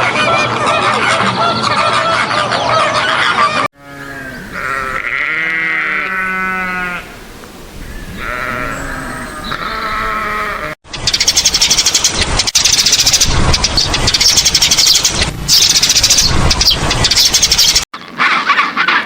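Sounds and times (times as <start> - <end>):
overlapping animal calls: 0.0 - 7.2, 7.8 - 10.8, 14.2 - 19.0
sheep or goat bleating: 3.8 - 7.2, 8.1 - 10.8.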